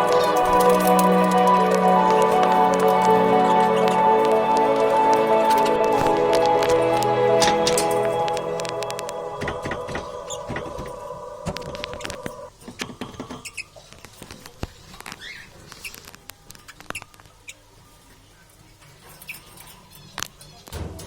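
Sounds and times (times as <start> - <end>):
held musical tone: 0.0 - 12.5.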